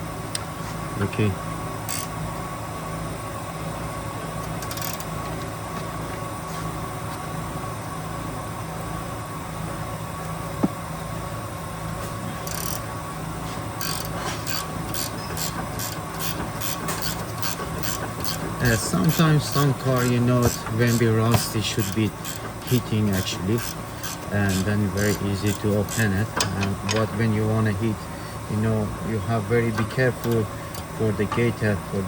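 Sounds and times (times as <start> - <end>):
steady mechanical hum: 0.0 - 32.0
socket ratchet clicking: 1.9 - 2.1, 4.4 - 5.1, 12.4 - 12.9, 13.8 - 27.0.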